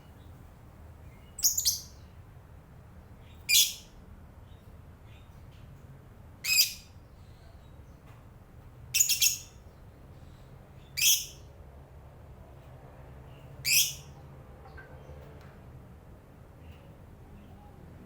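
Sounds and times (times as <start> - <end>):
lovebird high-pitched calls: 1.3 - 2.0, 3.4 - 3.9, 6.4 - 6.9, 8.9 - 9.6, 10.8 - 11.4, 13.6 - 14.1.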